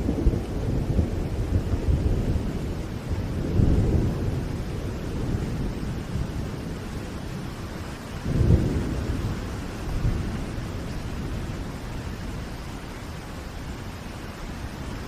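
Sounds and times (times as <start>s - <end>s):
low thunder rumbling: 0.0s - 15.0s
steady rain: 0.0s - 15.0s.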